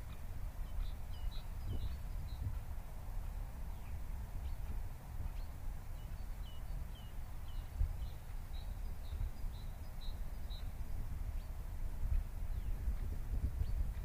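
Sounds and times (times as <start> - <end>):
small bird chirping: 0.1 - 2.6, 5.3 - 11.6.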